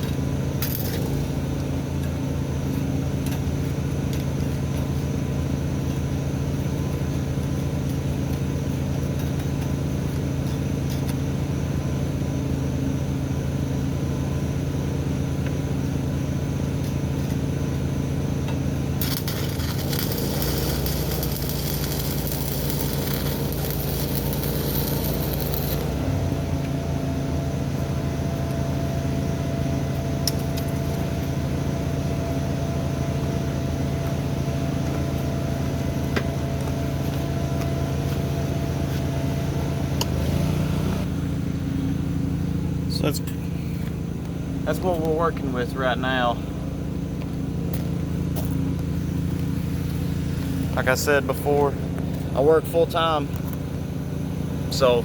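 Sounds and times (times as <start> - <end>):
steady low hum: 0.0 - 55.0
welding arc crackling hiss: 18.8 - 26.2.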